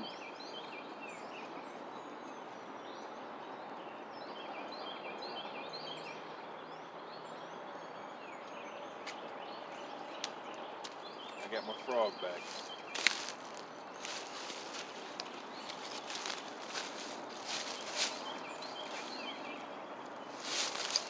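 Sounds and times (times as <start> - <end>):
birds chirping and whistling: 7.2 - 21.0.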